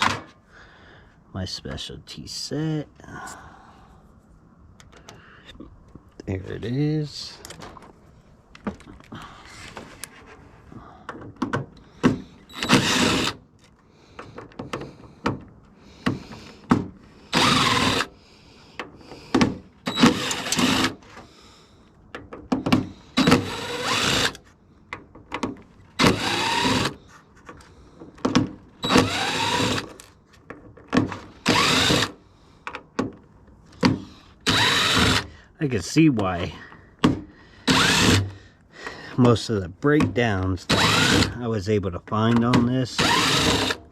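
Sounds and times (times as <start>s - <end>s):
power drill backing out screws: 12.0s - 15.0s, 16.1s - 18.2s, 19.1s - 21.2s, 22.6s - 24.4s, 25.9s - 30.2s, 30.9s - 32.2s, 33.8s - 35.3s, 37.7s - 38.4s, 40.0s - 41.4s, 42.2s - 43.9s.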